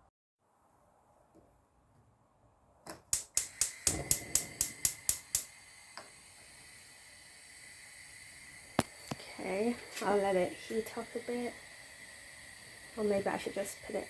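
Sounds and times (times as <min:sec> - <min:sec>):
gas hob igniter clicking: 0:02.9 - 0:09.2
gas burner hissing: 0:02.9 - 0:14.0.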